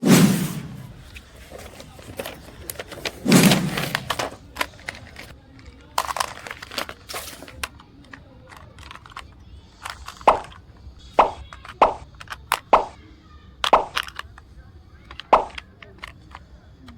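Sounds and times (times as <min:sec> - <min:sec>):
heavy thud: 0:00.0 - 0:04.6
plastic packaging crinkling: 0:00.9 - 0:10.6.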